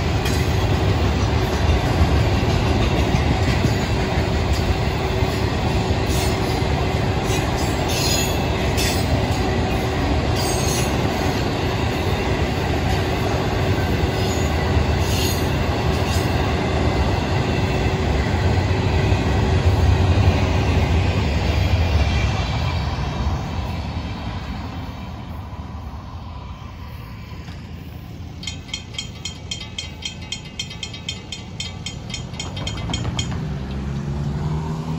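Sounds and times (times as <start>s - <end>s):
train wheels rumbling on rails: 0.0s - 34.9s.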